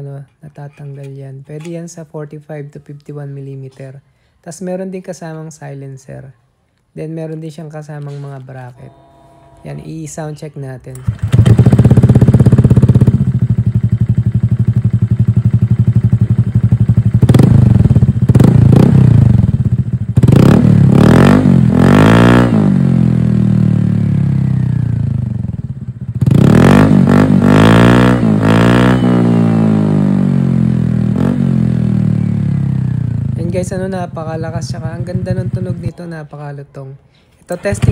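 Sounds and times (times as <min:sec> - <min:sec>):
motorcycle engine revving: 0:10.9 - 0:36.0, 0:37.6 - 0:37.9.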